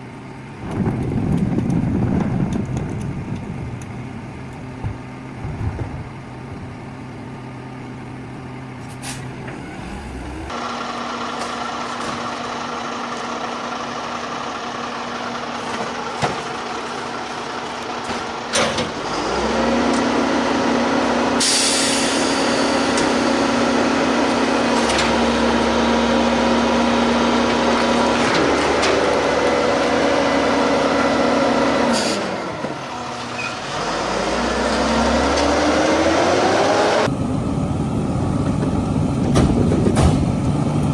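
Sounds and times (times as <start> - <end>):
garbage truck engine revving: 5.0 - 40.9
air brake hissing: 8.8 - 10.5, 21.4 - 23.4.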